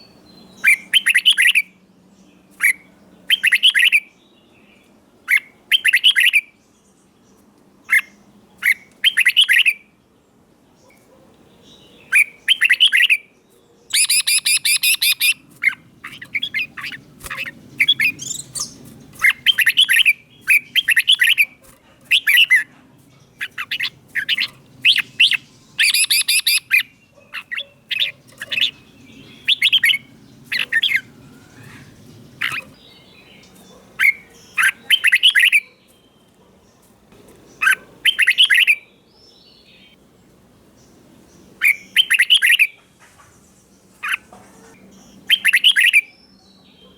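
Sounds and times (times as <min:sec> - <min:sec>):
bird singing whistled phrases: 0:12.1 - 0:13.2, 0:13.9 - 0:15.4, 0:23.4 - 0:26.9, 0:29.3 - 0:30.0, 0:34.0 - 0:36.2, 0:38.1 - 0:38.9, 0:41.7 - 0:42.8.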